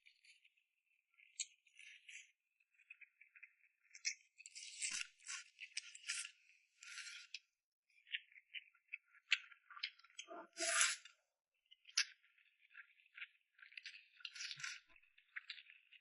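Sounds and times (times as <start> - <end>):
chewing and wet mouth noises: 1.2 - 7.4, 8.0 - 11.0, 11.8 - 16.0.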